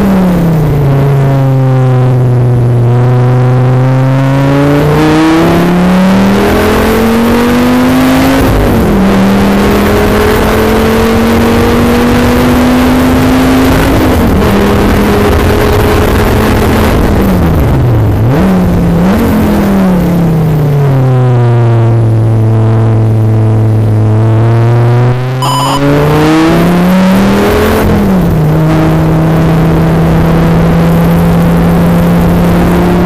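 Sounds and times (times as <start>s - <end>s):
wind and road noise: 0.0s - 33.0s
sports car engine accelerating: 23.5s - 33.0s.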